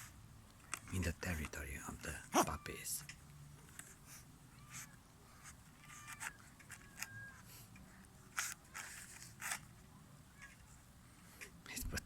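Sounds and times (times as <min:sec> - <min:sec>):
faint high squeak: 0:04.5 - 0:07.6.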